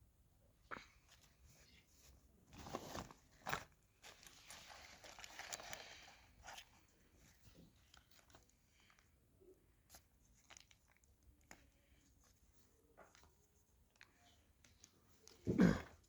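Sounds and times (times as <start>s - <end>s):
soft rustling scrape: 1.1s - 8.6s.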